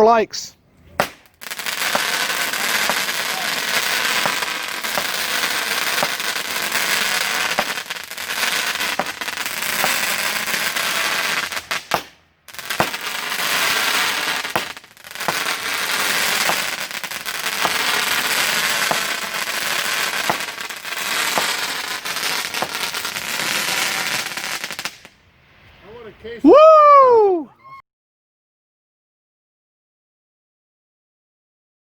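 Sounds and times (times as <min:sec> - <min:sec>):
firework cake crackling and popping: 0:01.0 - 0:25.2.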